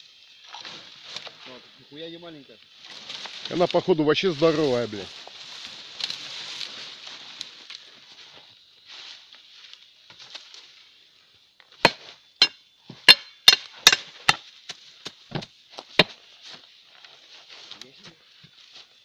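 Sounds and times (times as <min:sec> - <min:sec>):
hand tool chopping wood: 0:11.8 - 0:16.2.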